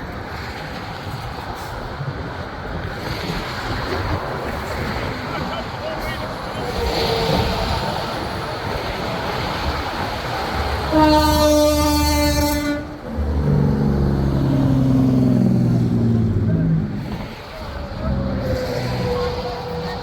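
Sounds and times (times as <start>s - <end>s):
traffic noise: 0.0s - 20.0s
truck air horn blasts: 10.9s - 17.2s.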